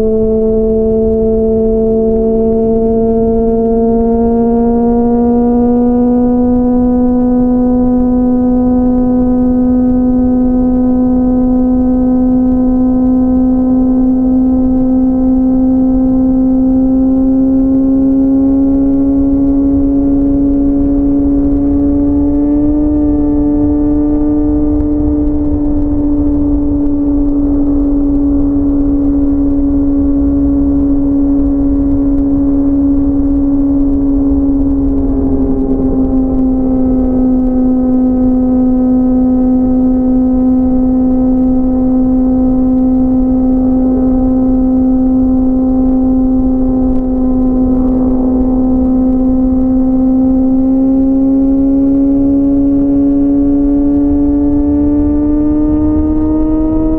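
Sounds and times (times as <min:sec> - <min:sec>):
low wind rumble: 0:00.0 - 0:56.9
motorcycle engine high-revving drone: 0:00.0 - 0:56.9.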